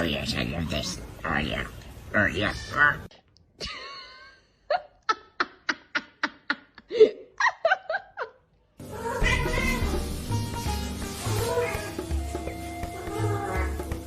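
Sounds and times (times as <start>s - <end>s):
music: 8.8s - 14.0s.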